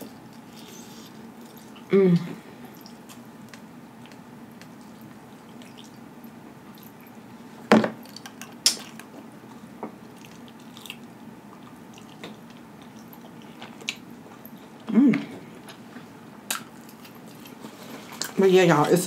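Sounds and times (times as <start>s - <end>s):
low steady hum: 0.0s - 19.0s
wet mouth chewing sounds: 2.7s - 7.2s, 8.2s - 18.4s.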